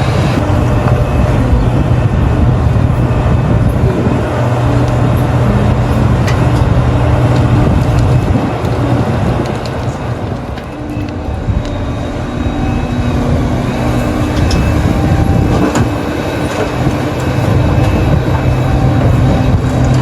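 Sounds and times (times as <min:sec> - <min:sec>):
diesel machinery engine drone: 0:00.0 - 0:20.0.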